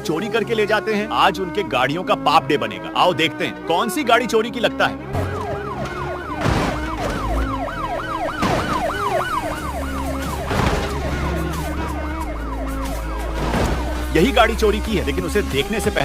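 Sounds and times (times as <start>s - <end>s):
emergency siren wailing: 5.1s - 15.6s
background music with beat: 5.1s - 16.0s
crash hits: 5.2s - 7.6s, 8.4s - 9.1s, 13.3s - 14.4s.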